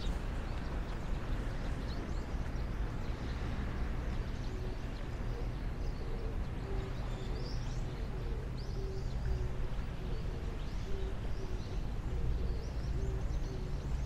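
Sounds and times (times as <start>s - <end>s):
small birds chirping: 0.0s - 9.4s
low rumble and hiss: 0.0s - 14.0s.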